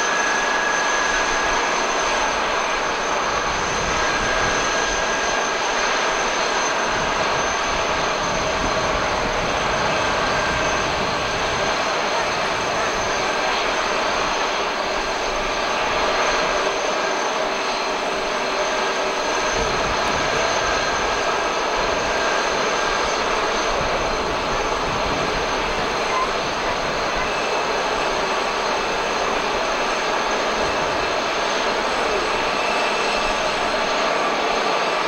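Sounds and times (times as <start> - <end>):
jet engines running with whine: 0.0 - 35.0.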